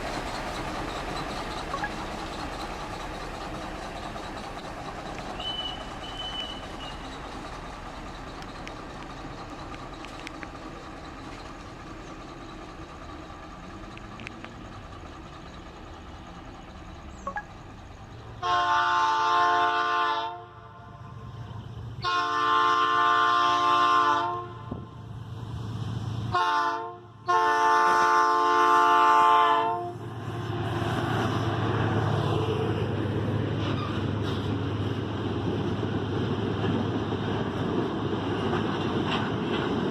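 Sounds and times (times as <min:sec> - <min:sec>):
train rumble: 0:00.0 - 0:39.9
locomotive air horn blasts: 0:18.4 - 0:20.9, 0:22.0 - 0:24.8, 0:26.3 - 0:30.0.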